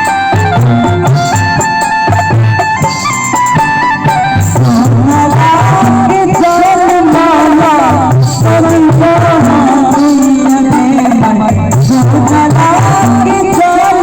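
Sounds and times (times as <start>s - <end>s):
steady drum beat: 0.0s - 14.0s
folk song with ornamented vocal: 4.6s - 14.0s.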